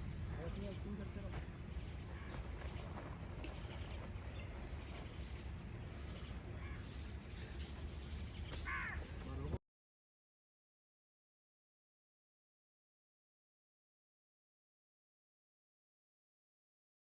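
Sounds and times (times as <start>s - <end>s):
faint insect chirring: 0.0s - 9.6s.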